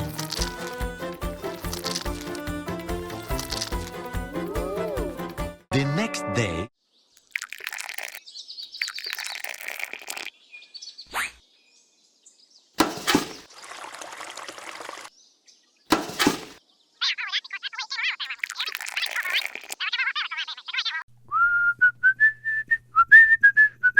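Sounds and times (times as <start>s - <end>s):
birds chirping: 6.9s - 12.4s.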